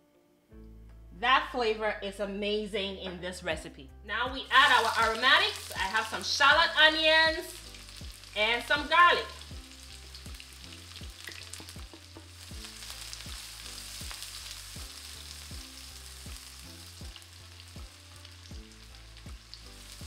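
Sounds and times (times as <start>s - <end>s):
garlic sizzling in hot oil: 4.4s - 20.0s.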